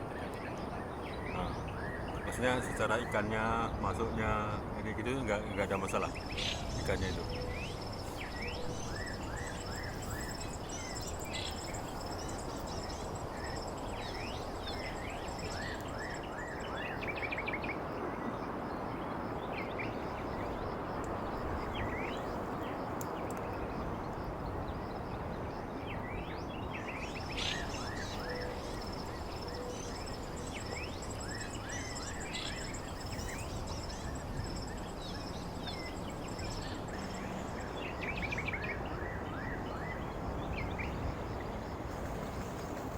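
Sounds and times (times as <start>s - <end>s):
constant rushing noise: 0.0s - 42.9s
high-pitched insect drone: 4.1s - 17.1s, 27.1s - 38.3s.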